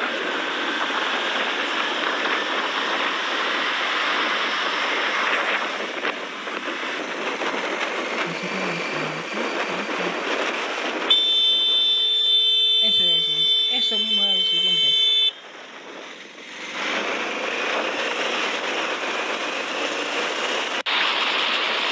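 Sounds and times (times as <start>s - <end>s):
high-pitched beeping tones: 12.8s - 15.3s.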